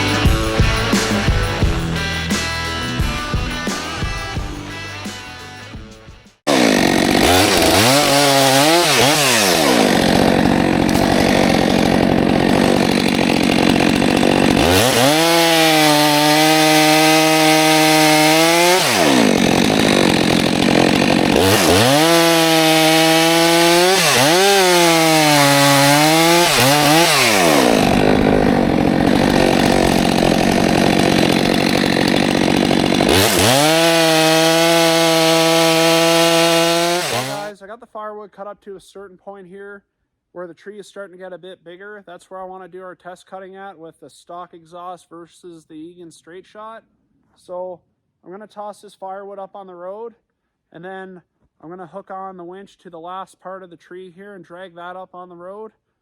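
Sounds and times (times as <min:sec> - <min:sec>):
chainsaw cutting firewood: 0:00.0 - 0:01.8, 0:06.5 - 0:37.5.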